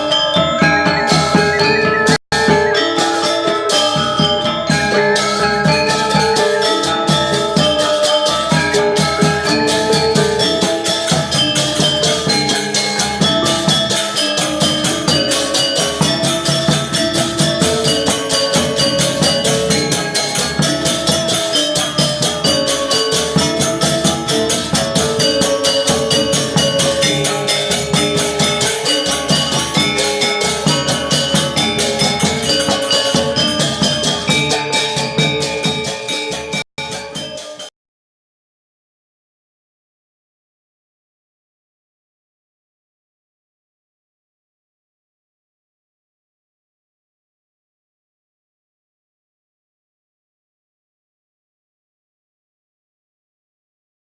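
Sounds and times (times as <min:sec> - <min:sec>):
drums: 0:00.0 - 0:37.7
metallophones and gongs: 0:00.0 - 0:37.7.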